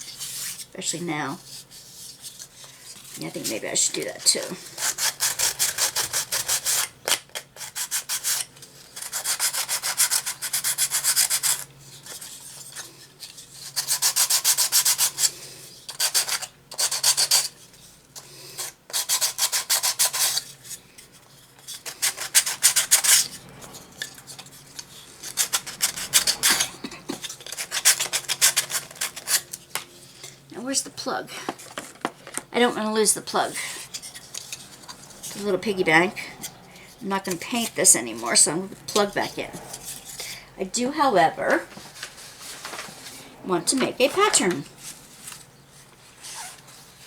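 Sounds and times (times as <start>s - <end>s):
sandpaper rubbing wood: 4.6s - 6.9s, 9.0s - 11.6s, 13.6s - 15.3s, 21.8s - 23.4s.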